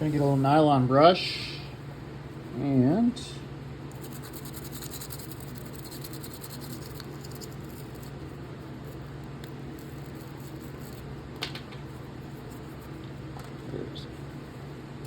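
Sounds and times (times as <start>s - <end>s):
steady low hum: 0.0s - 15.0s
brush scrubbing a knife: 4.0s - 9.0s, 9.7s - 11.0s.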